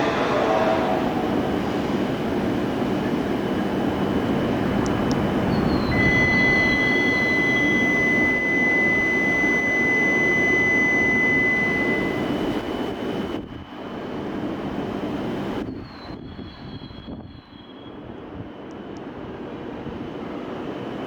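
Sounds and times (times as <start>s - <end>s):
train rumbling past: 0.0s - 12.4s
high steady whine: 0.0s - 14.2s.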